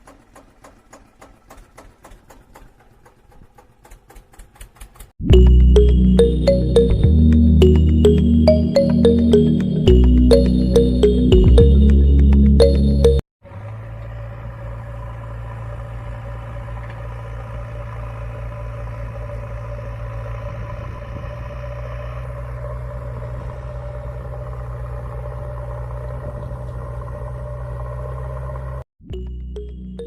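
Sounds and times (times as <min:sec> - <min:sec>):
motor droning: 0:13.5 - 0:28.8.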